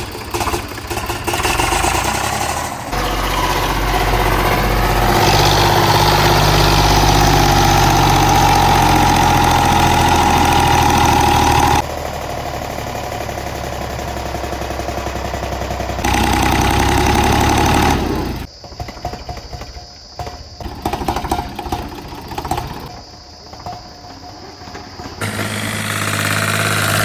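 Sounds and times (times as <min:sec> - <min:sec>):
diesel tractor engine running hard: 0:00.0 - 0:18.5, 0:25.2 - 0:27.0
high engine whine: 0:00.1 - 0:18.5, 0:25.2 - 0:27.0.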